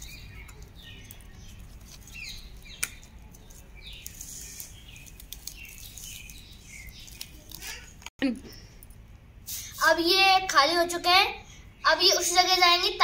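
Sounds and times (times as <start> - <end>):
birds chirping: 0.0 - 8.8.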